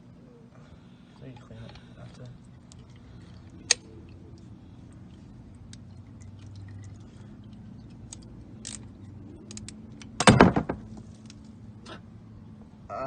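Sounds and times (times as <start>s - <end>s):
tools and parts clicking: 8.1s - 10.4s.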